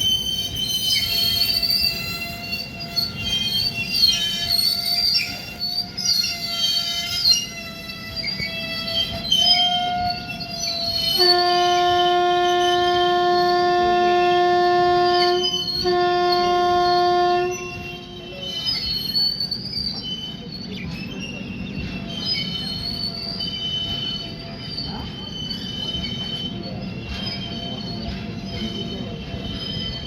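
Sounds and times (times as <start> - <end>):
high-pitched wheel squeal: 0.0 - 30.0
moving train rumble: 0.0 - 30.0
train horn blasts: 6.2 - 18.5.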